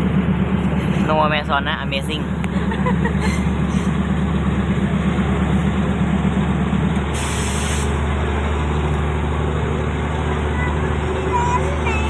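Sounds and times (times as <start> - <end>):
low railcar engine drone: 0.0 - 12.0
wheel and track noise: 0.0 - 12.0
short hiss of air: 7.1 - 8.0.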